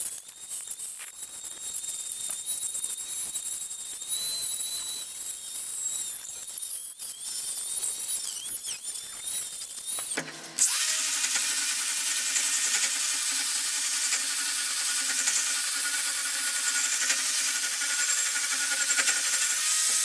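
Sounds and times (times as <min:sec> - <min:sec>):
harsh grinding noise: 0:00.0 - 0:20.0
power tool cutting bamboo root: 0:05.7 - 0:20.0.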